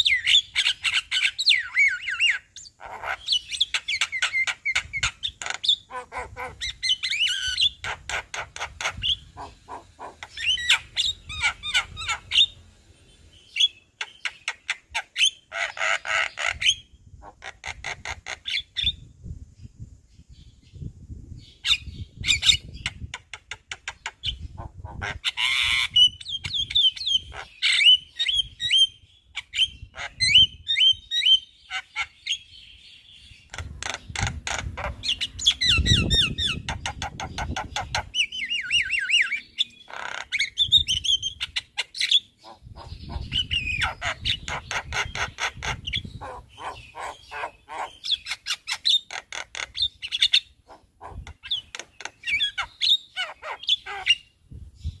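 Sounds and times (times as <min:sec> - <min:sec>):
myna singing and chattering: 0:42.4 - 0:48.0.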